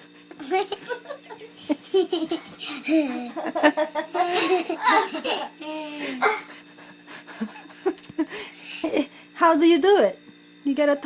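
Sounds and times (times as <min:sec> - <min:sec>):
young child giggling: 0:00.6 - 0:08.3.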